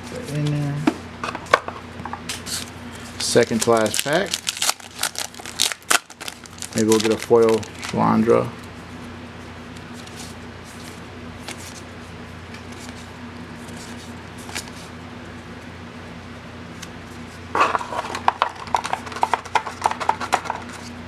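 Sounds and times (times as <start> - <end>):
low electrical hum: 0.0 - 21.0
foil wrapper tearing and crinkling: 3.2 - 8.1.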